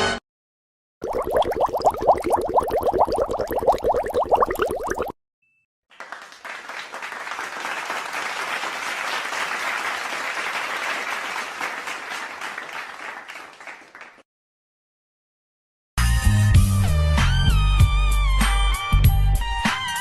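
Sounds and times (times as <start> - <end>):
crowd applauding: 5.9 - 14.2.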